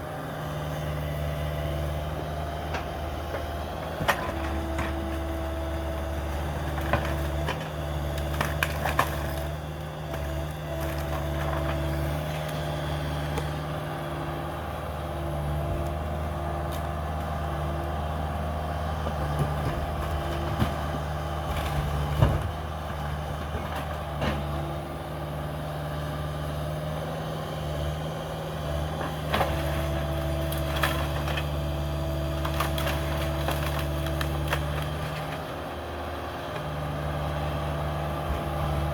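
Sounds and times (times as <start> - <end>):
diesel engine running: 0.0 - 38.9
wood cracking and knocking: 32.3 - 35.4.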